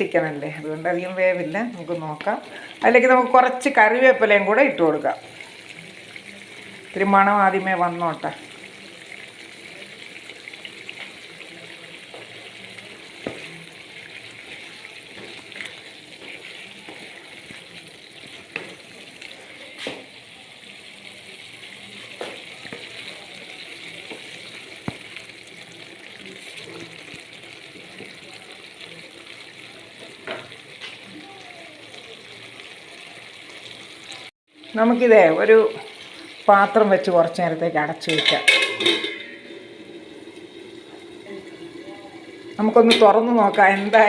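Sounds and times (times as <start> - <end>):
chicken sizzling in oil: 0.0 - 44.0
spoon scraping a pan: 12.2 - 20.0, 38.0 - 40.2.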